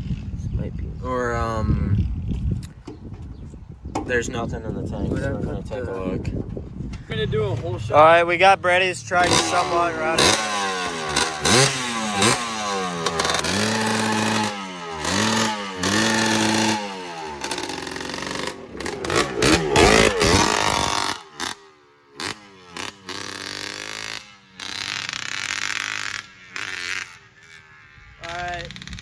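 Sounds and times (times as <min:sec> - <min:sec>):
truck engine revving roughly: 0:09.1 - 0:27.7.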